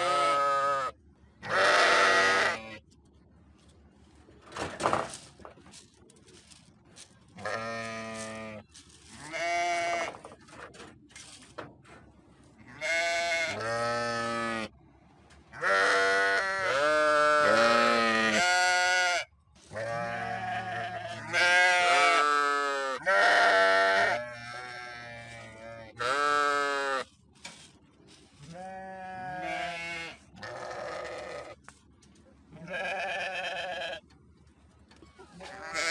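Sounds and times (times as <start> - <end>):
sheep bleating: 0.0 - 2.8, 7.4 - 8.6, 9.2 - 10.1, 12.7 - 14.7, 15.6 - 27.1, 28.4 - 31.6, 32.6 - 34.0, 35.4 - 35.9.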